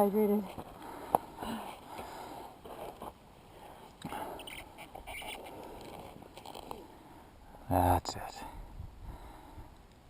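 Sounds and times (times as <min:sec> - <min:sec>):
soft clicks and scrapes: 0:00.4 - 0:06.9.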